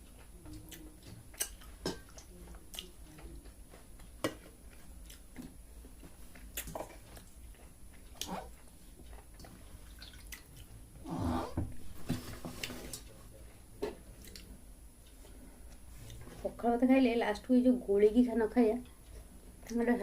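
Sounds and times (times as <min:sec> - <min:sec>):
chewing: 0:00.2 - 0:10.8.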